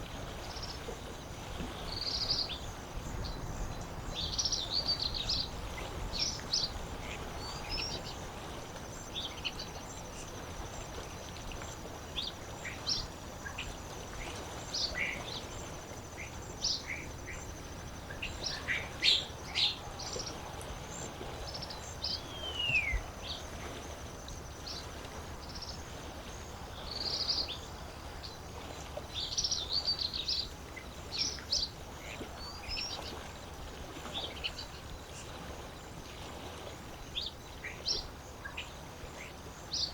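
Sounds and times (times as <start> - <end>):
lakeside water ambience: 0.0 - 39.9.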